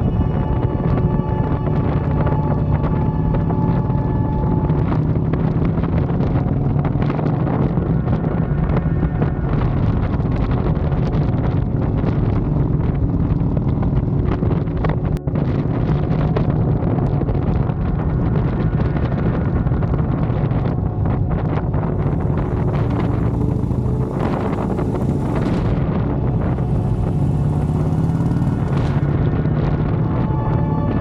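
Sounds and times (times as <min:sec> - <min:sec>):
motorcycle engine running: 0:00.0 - 0:31.0
wind rushing over microphone: 0:00.0 - 0:31.0.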